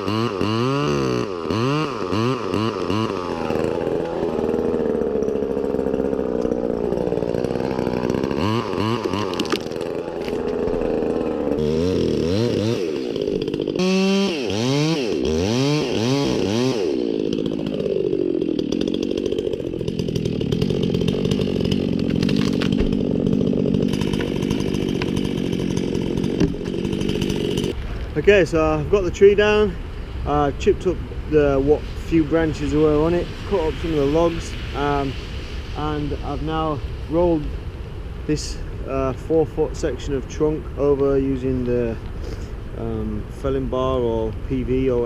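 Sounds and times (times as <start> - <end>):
chainsaw running and cutting: 0.0 - 28.1, 30.2 - 45.0.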